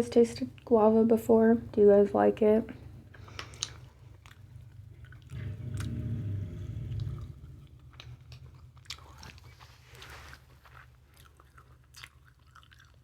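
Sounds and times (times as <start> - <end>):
chewing with wet mouth clicks: 3.1 - 10.1, 10.7 - 13.0
low muffled stretch: 4.6 - 10.9.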